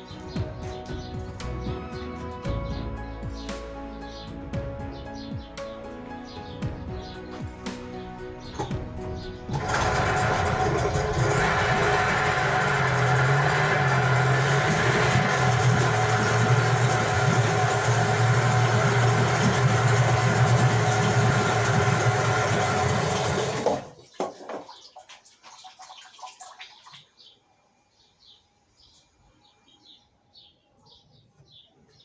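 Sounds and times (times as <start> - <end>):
outboard motor running: 8.6 - 23.9.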